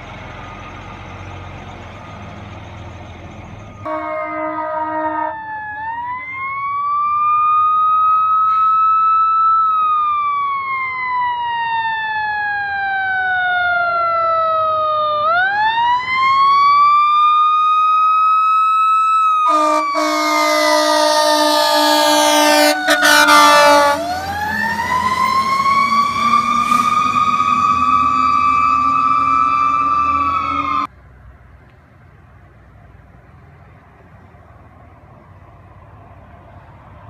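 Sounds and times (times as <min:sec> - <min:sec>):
fire truck siren wailing: 0:03.4 - 0:30.9
fire truck air horn: 0:03.8 - 0:05.5, 0:08.4 - 0:08.8, 0:19.4 - 0:30.9.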